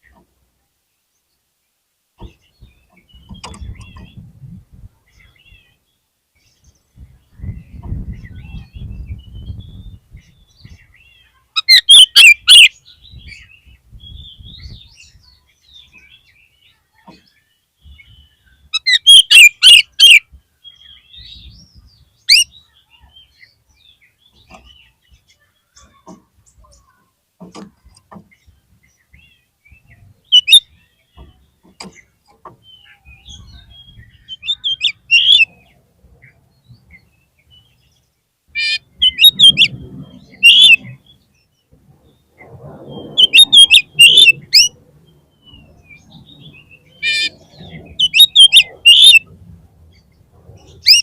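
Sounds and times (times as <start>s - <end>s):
bird chirping: 0.0s - 51.0s
bird bursts of rapid notes: 11.6s - 12.8s, 18.8s - 20.2s, 30.2s - 32.1s, 32.8s - 35.5s, 38.6s - 41.2s, 42.4s - 44.8s, 46.7s - 49.3s.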